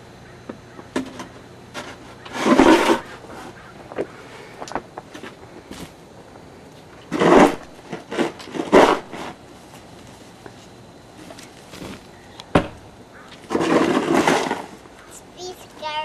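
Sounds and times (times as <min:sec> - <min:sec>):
snow shovel scraping: 0:01.8 - 0:03.5, 0:07.1 - 0:09.4, 0:11.2 - 0:12.2, 0:13.5 - 0:14.8.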